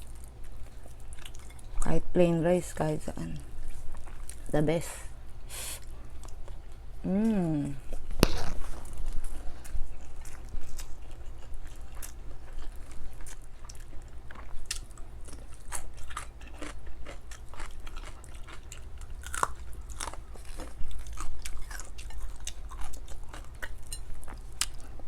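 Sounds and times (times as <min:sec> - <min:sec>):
person chewing food: 0:00.0 - 0:01.8, 0:03.6 - 0:04.5, 0:05.8 - 0:25.0.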